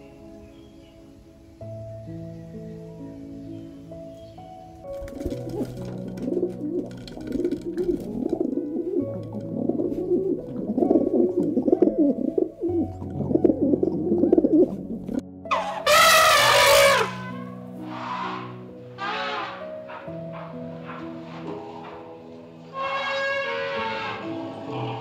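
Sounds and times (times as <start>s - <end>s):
soft background music: 0.0s - 25.0s
pigeons cooing: 4.9s - 15.9s, 22.8s - 25.0s
loud high falling call: 15.5s - 19.6s.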